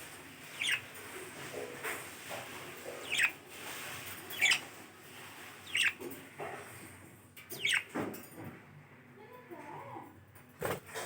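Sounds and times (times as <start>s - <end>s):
parrot chirping: 0.4s - 0.9s, 2.9s - 3.4s, 4.3s - 4.8s, 5.4s - 6.0s, 7.5s - 7.9s.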